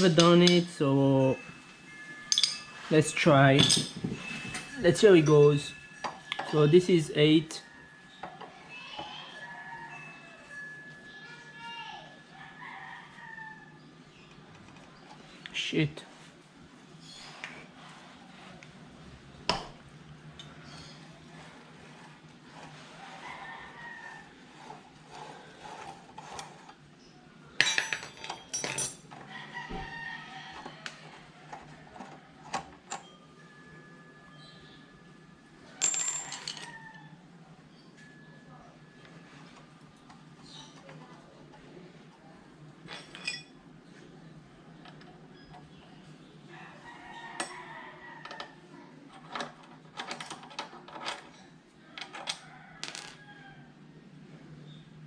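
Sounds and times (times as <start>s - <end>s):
faint metallic ring: 1.4s - 6.7s
metal tools clinking: 1.4s - 8.6s, 27.6s - 29.3s, 35.8s - 36.8s, 42.9s - 43.6s.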